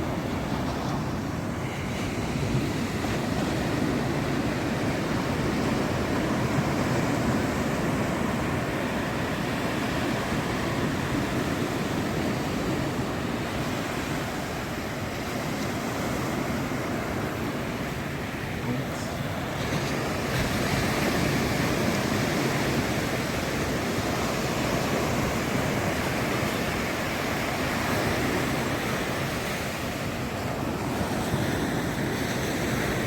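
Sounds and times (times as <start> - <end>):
ocean waves breaking on beach: 0.0 - 33.0.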